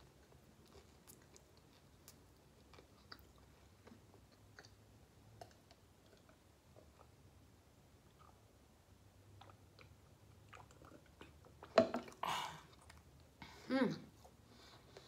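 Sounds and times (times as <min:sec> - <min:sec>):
person chewing with mouth clicks: 0:00.0 - 0:07.2, 0:08.0 - 0:08.5, 0:09.3 - 0:13.3.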